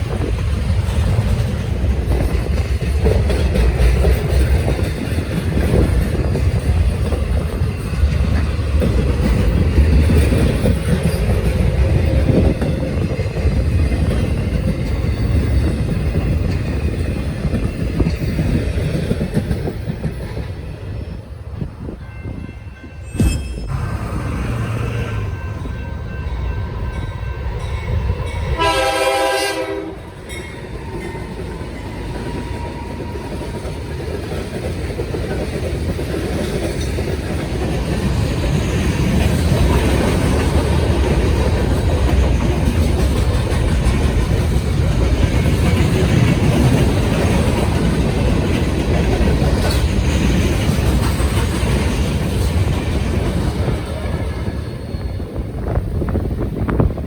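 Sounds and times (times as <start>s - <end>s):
train wheels on rails: 0.0s - 57.0s
train horn blast: 28.5s - 30.2s.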